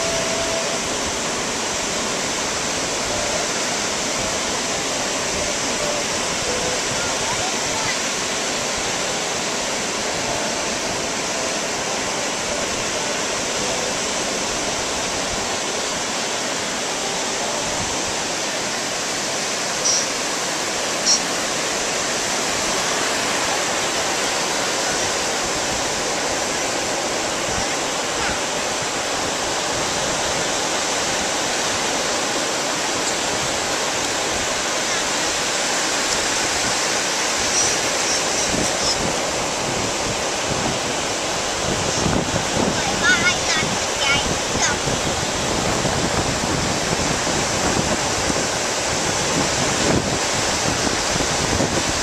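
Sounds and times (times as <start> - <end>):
ocean surf: 0.0 - 52.0
wind rushing: 21.5 - 52.0.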